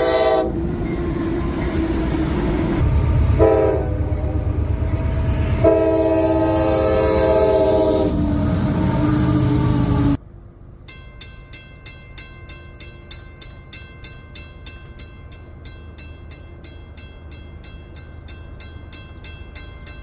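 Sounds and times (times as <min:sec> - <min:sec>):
railroad crossing bell ringing: 0:00.0 - 0:02.8, 0:10.8 - 0:20.0
low train rumble: 0:00.0 - 0:20.0.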